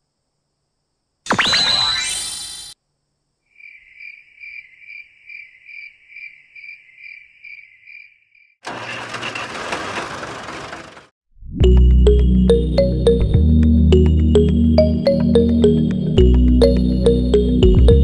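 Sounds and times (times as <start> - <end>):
insect-like pulsing chirping: 1.3 - 2.8, 3.5 - 8.5
rough tractor engine: 8.6 - 11.1
music: 11.5 - 18.0.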